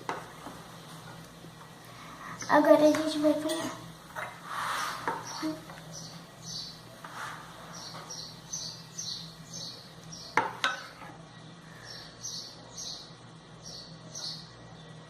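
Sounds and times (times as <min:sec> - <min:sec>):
bird chirping: 0:05.1 - 0:06.9, 0:07.6 - 0:10.6, 0:11.3 - 0:15.0
kitchenware clinking: 0:10.4 - 0:11.0.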